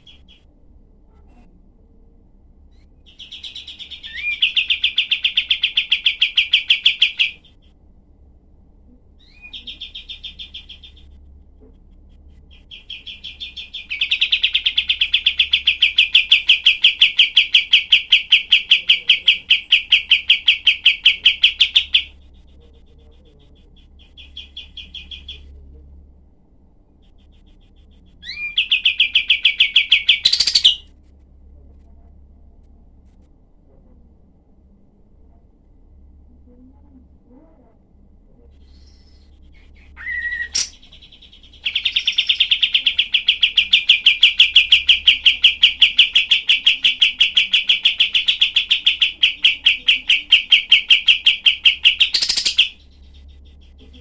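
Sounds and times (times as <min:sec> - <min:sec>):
songbird singing harsh rapid notes: 0:03.1 - 0:07.5, 0:12.6 - 0:25.5, 0:27.0 - 0:30.9, 0:38.6 - 0:53.9.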